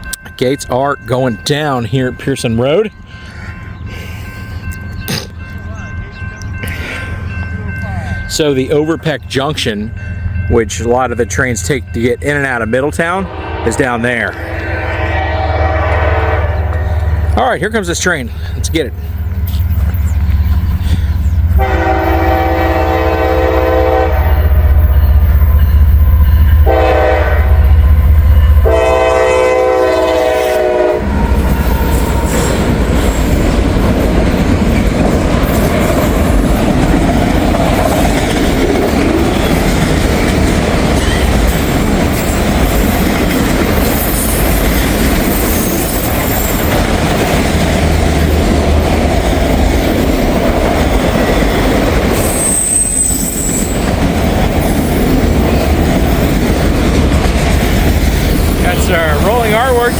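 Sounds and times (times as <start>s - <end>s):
crossing signal bell: 0.0s - 15.4s, 16.5s - 37.7s
train air horn blasts: 13.2s - 17.3s, 21.5s - 24.8s, 26.5s - 32.6s.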